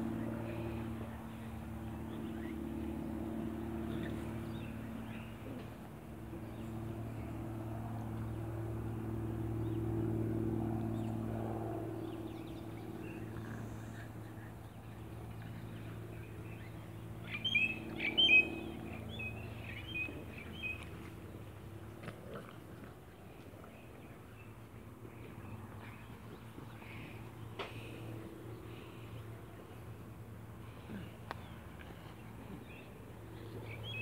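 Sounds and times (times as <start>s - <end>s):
steady low hum: 0.0s - 34.0s
bird chirping: 15.8s - 20.9s.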